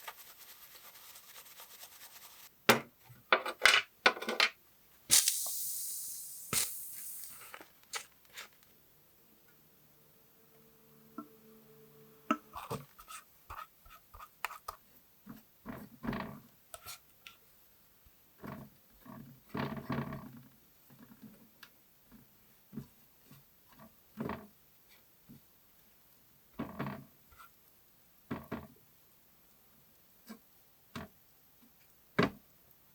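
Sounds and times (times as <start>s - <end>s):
scraping and rubbing on model car: 0.0s - 2.5s, 12.6s - 14.8s.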